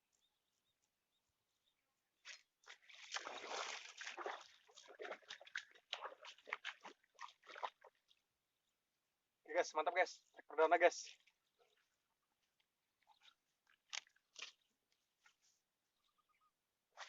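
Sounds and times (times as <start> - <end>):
water splashing and sloshing: 2.2 - 8.4, 11.0 - 15.5.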